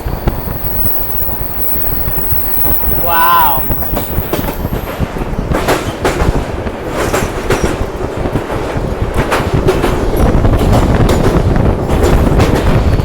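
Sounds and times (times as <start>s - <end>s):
train wheels rumbling on track: 0.0s - 13.0s
wheels clacking over rail joints: 3.6s - 13.0s.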